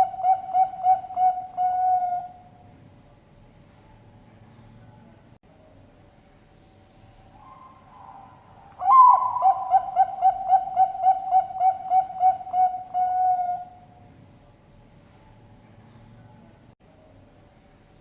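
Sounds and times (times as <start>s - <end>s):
dove cooing: 0.0s - 2.5s, 7.4s - 13.9s.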